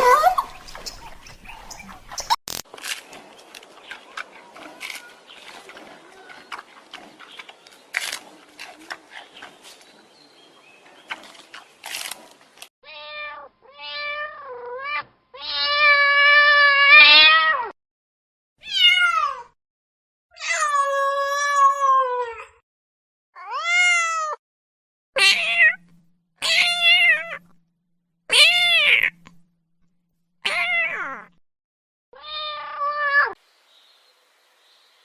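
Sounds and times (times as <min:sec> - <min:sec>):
cat meowing: 0:18.6 - 0:19.4, 0:23.4 - 0:24.4, 0:25.2 - 0:27.4, 0:28.3 - 0:29.2, 0:30.5 - 0:31.3, 0:32.2 - 0:33.4.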